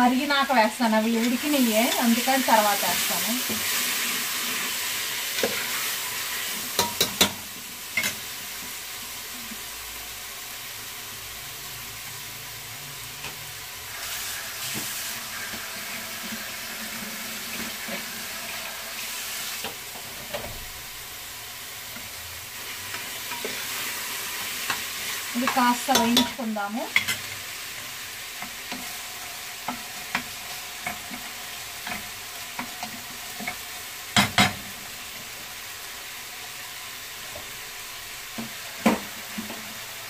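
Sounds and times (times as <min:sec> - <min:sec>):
vegetables sizzling in a pot: 0:00.0 - 0:40.0.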